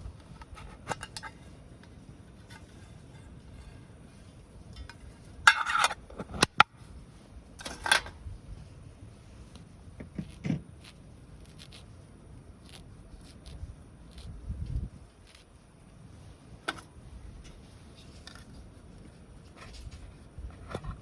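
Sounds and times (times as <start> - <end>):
campfire crackling: 9.0 - 18.0.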